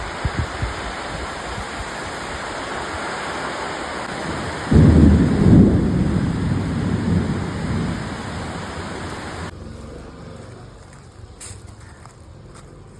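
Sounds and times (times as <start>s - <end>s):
rain falling: 0.0s - 9.5s
deep rumble: 4.4s - 9.5s.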